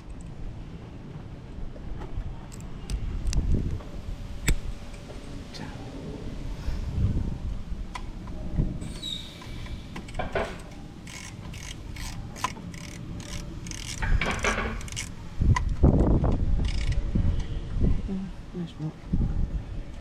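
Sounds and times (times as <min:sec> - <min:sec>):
hand tool ratcheting: 0:09.4 - 0:17.0.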